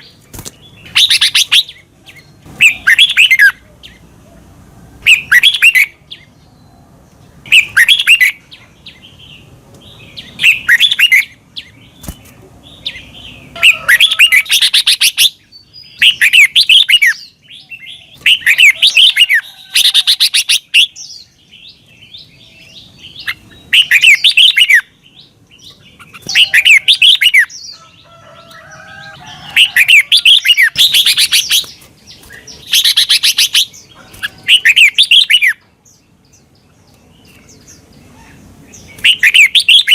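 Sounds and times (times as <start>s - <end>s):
bird singing whistled notes: 20.5s - 24.9s, 29.5s - 35.6s.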